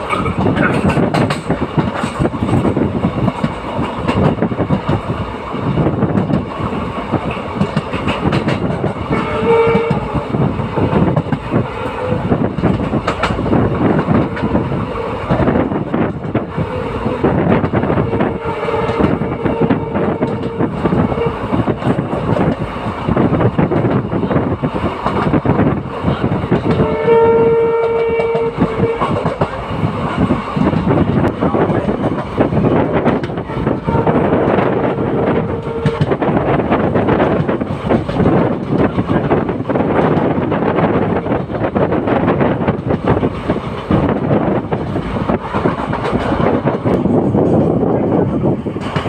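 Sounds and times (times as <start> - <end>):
wheels clattering over rail joints: 0.0 - 5.1
train rumbling: 0.0 - 49.0
train horn blasts: 9.1 - 12.4, 17.8 - 21.6, 26.7 - 29.4, 33.4 - 36.4.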